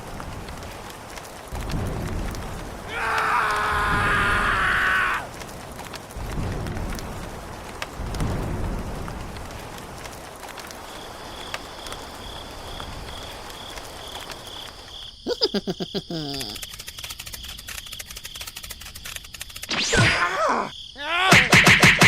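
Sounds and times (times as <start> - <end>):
cricket chirping: 0.0 - 22.0
fast even ticking: 16.2 - 19.7
burst of clicks with falling tones: 16.2 - 20.2.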